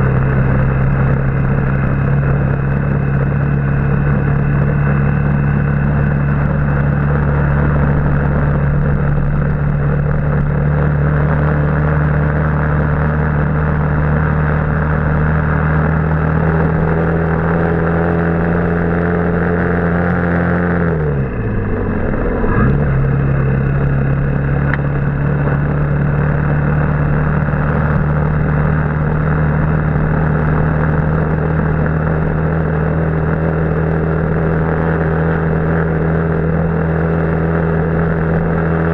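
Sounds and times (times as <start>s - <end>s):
motorbike engine running: 0.0s - 38.9s
riding wind rush: 16.2s - 35.5s.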